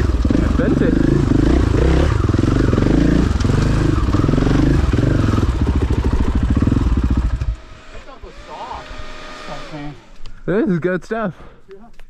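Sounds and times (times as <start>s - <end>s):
dirt bike engine revving: 0.0s - 10.2s.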